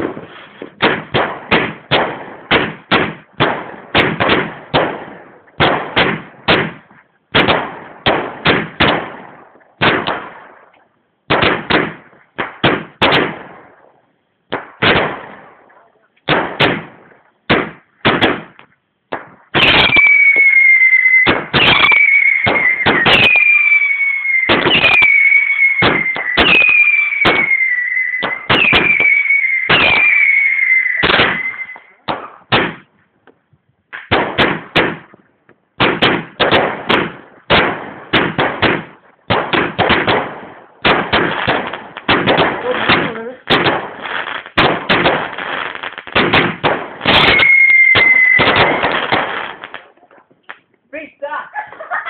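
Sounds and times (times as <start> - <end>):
fireworks banging: 0.0 - 52.0
falling firework whistle: 19.5 - 32.0, 47.1 - 49.6.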